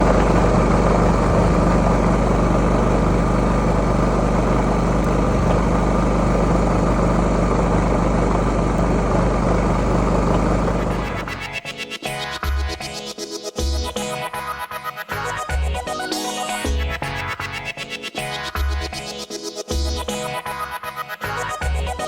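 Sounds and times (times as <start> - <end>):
generator engine droning: 0.0 - 11.6.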